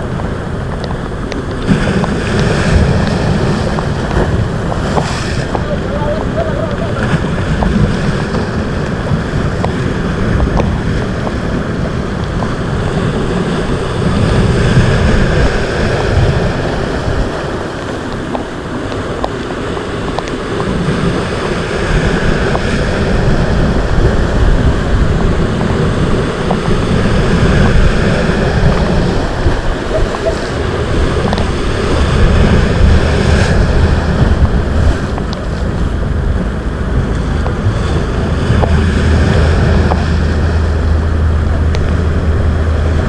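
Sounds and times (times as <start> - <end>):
rough sea waves surging: 0.0 - 43.0
wind buffeting microphone: 0.0 - 43.0.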